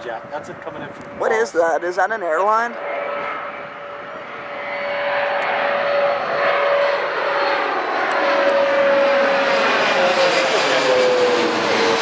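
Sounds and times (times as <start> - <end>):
airliner engine whine overhead: 0.0 - 12.0.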